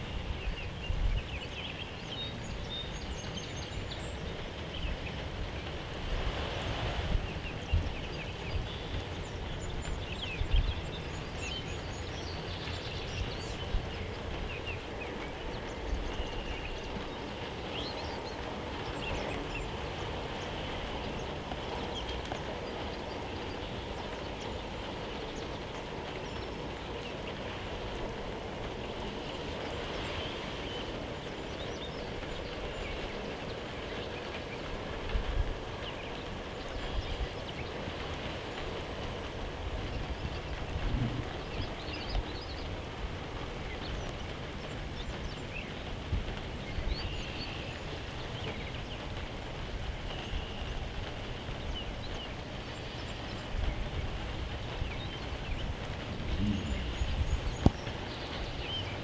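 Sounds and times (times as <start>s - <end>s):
steady rain pattering: 0.0s - 59.0s
faint bird chirps: 54.9s - 59.0s.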